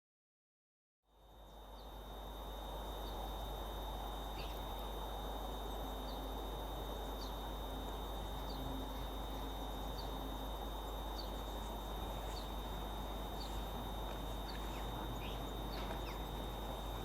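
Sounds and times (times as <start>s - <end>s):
low electrical hum: 1.1s - 17.0s
thin high whine: 1.1s - 17.0s
small bird chirping: 4.2s - 5.0s, 5.7s - 7.6s, 8.2s - 17.0s.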